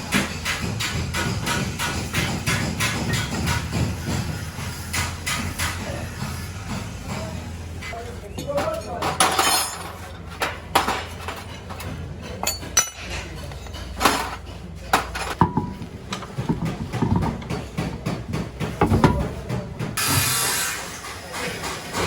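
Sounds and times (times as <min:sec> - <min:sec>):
metal tools clinking: 0:09.2 - 0:10.3, 0:12.3 - 0:17.5.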